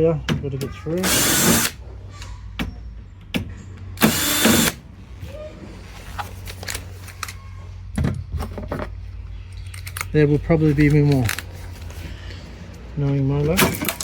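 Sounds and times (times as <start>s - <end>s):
power drill running: 1.0s - 1.8s, 4.0s - 4.8s.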